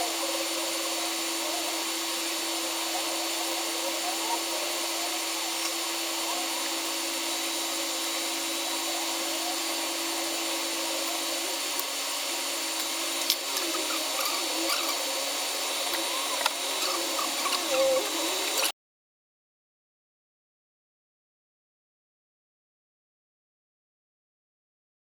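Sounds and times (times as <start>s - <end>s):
machine whirring hum and whine: 0.0s - 18.7s.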